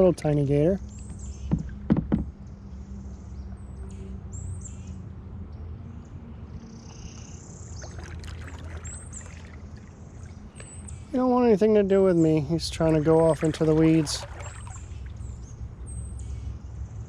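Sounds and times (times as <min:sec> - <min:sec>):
birds chirping: 0:00.0 - 0:05.0, 0:05.6 - 0:17.0
sharp knocks: 0:01.5 - 0:02.3
long bird call: 0:12.1 - 0:15.4.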